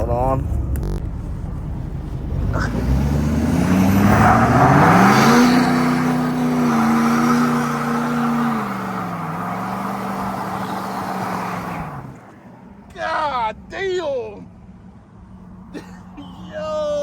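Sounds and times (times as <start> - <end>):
vehicle engine revving: 0.0 - 12.3.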